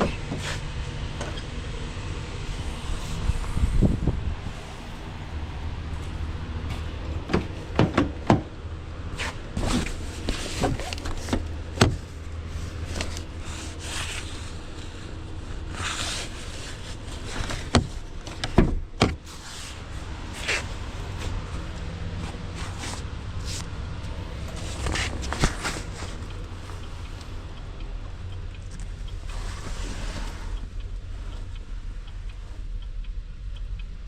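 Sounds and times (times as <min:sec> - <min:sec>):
low engine hum: 0:00.0 - 0:34.0
sharp knocks and clunks: 0:06.7 - 0:08.5, 0:10.5 - 0:12.0.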